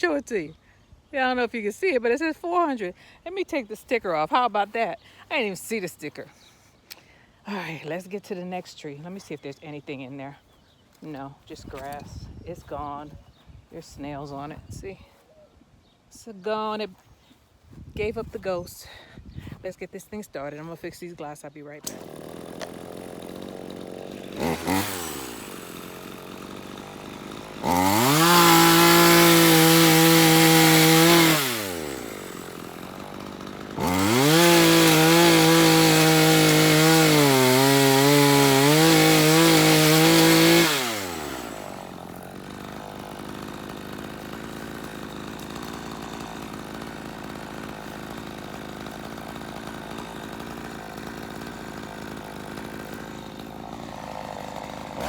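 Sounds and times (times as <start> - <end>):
chainsaw idling and revving: 10.4 - 13.4, 20.2 - 55.0.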